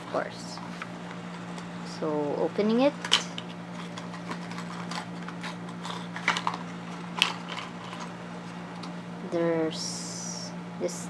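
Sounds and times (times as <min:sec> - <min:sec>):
steady low hum: 0:00.0 - 0:11.0
packaging clicks and scrapes: 0:02.8 - 0:09.0.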